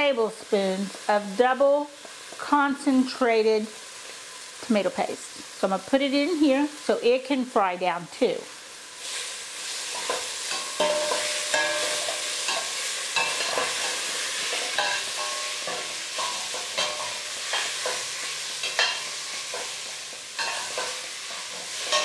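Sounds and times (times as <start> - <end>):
vegetables sizzling in oil: 0.0 - 22.0
spoon knocking and scraping pot: 10.0 - 22.0.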